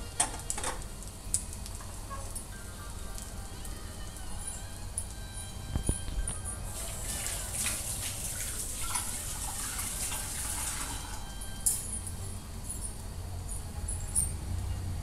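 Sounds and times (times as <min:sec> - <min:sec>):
bread sizzling in a pan: 0:06.7 - 0:11.3.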